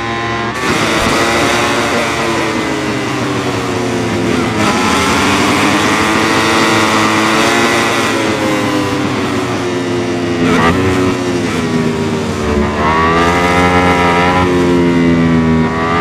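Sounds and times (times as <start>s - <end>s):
racing motorcycle engines: 0.0s - 16.0s.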